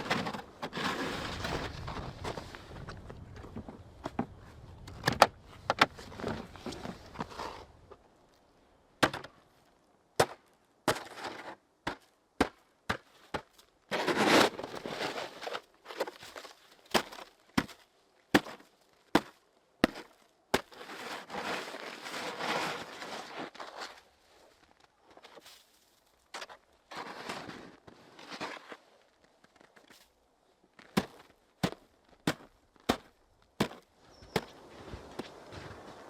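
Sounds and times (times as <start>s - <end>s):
shovel scraping snow: 0.0s - 2.8s, 13.9s - 16.2s, 20.0s - 24.2s, 26.4s - 28.8s
shovel chopping into snow: 30.9s - 34.6s.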